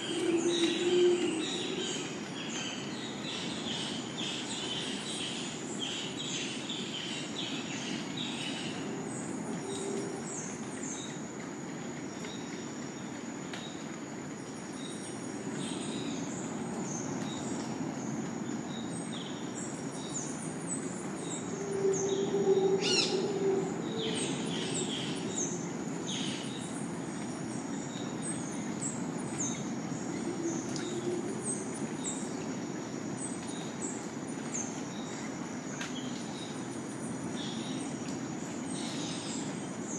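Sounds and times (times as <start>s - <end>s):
insect whine: 0.0s - 5.0s, 7.0s - 11.2s, 14.8s - 36.0s.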